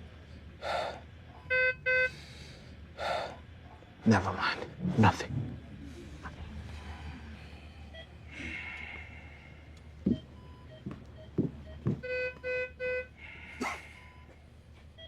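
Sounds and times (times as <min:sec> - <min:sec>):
low steady hum: 0:00.0 - 0:15.0
short beeps: 0:01.4 - 0:02.1.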